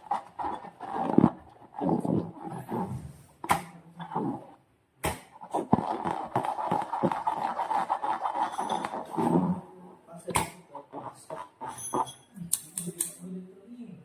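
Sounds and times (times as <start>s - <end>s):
slime squelching and crackling: 0.0s - 3.0s.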